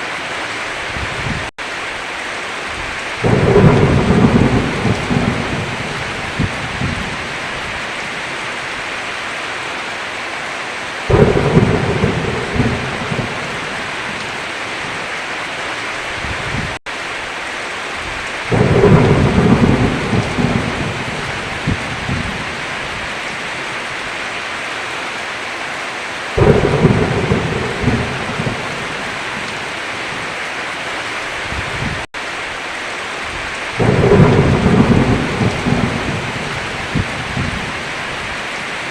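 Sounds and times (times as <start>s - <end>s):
heavy rain: 0.0s - 38.9s
thunder rolling: 3.2s - 7.7s, 11.1s - 14.4s, 18.5s - 23.0s, 26.4s - 29.7s, 33.8s - 37.8s.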